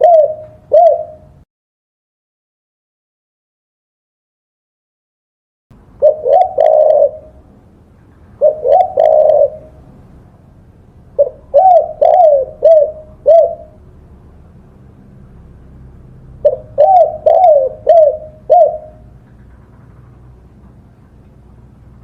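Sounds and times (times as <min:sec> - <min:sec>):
dove cooing: 0:00.0 - 0:01.4, 0:06.0 - 0:07.5, 0:08.4 - 0:10.0, 0:11.2 - 0:13.8, 0:16.4 - 0:19.2.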